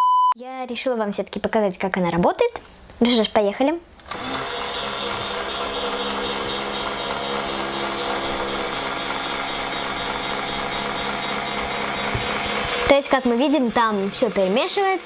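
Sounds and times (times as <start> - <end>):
toy washing machine motor whirring: 4.1 - 15.0.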